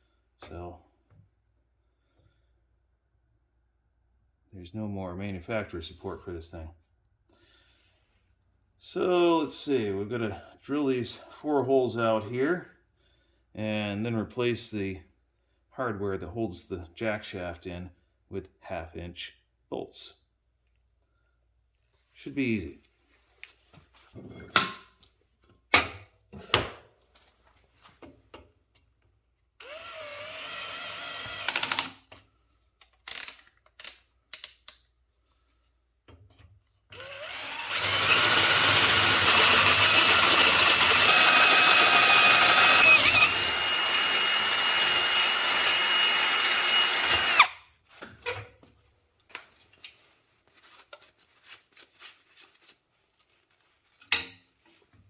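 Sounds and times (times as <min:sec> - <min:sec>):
cordless drill drilling metal: 0:29.6 - 0:31.9, 0:36.9 - 0:47.6.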